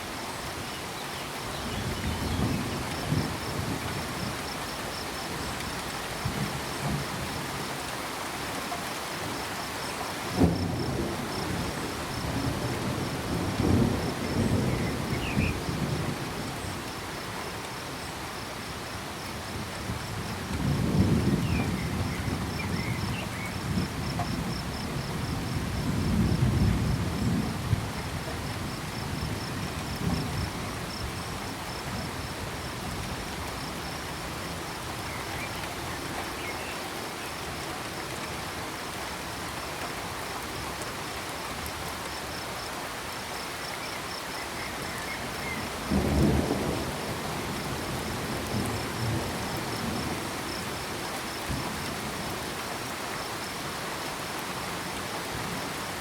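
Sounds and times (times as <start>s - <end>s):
steady rain: 0.0s - 56.0s
cricket chirping: 0.6s - 6.4s, 9.0s - 16.0s, 41.6s - 54.4s
rolling thunder: 10.3s - 16.2s, 45.5s - 50.6s.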